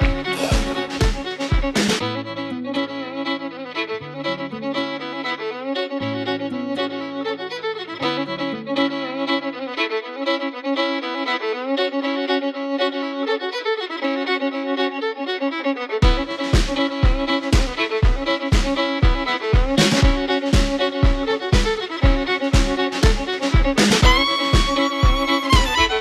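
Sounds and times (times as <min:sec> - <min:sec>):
kick drum beat: 0:00.0 - 0:02.0, 0:16.0 - 0:26.0
low bass notes: 0:00.0 - 0:02.1
fiddle music: 0:00.0 - 0:26.0.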